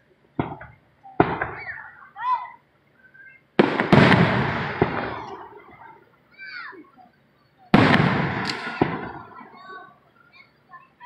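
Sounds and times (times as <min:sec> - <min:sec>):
fireworks crackling: 0:00.0 - 0:11.0
fireworks booming: 0:00.3 - 0:02.2, 0:03.4 - 0:06.6, 0:07.7 - 0:10.6.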